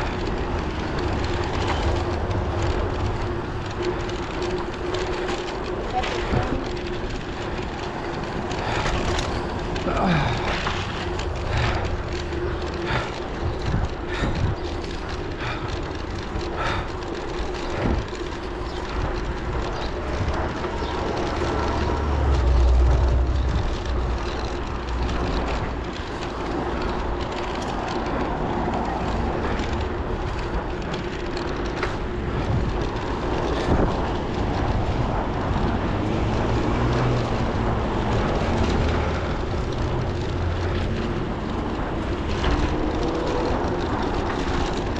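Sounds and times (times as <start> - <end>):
low rumble: 0.0 - 44.9
road noise: 0.0 - 44.9
rushing wind: 0.0 - 44.9.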